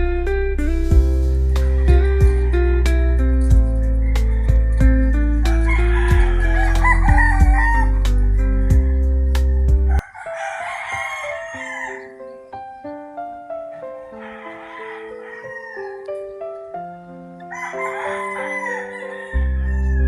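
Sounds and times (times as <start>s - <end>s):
melodic music over heavy bass: 0.0s - 10.0s
rooster crowing: 1.7s - 12.6s, 13.7s - 20.0s.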